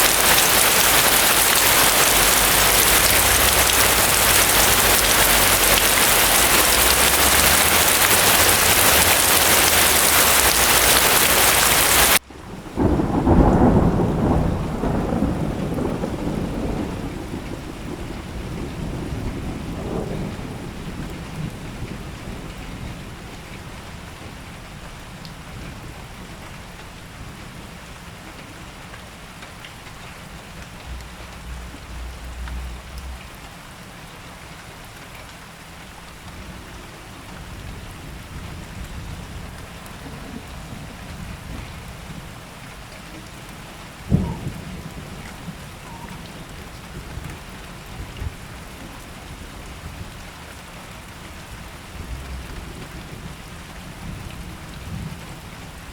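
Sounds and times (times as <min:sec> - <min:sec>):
thunder rumbling: 0:00.0 - 0:24.4, 0:29.8 - 0:34.4, 0:36.2 - 0:50.2, 0:51.2 - 0:55.9
rain falling: 0:00.0 - 0:55.9.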